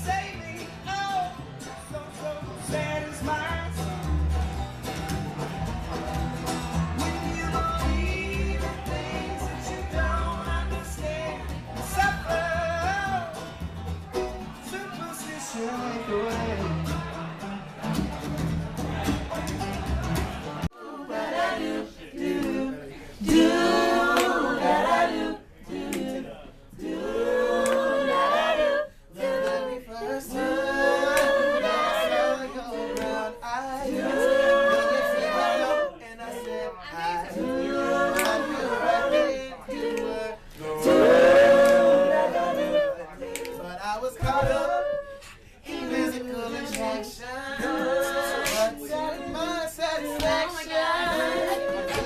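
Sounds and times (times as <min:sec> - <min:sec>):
voices singing a cappella: 0:06.9 - 0:13.5, 0:20.6 - 0:52.0.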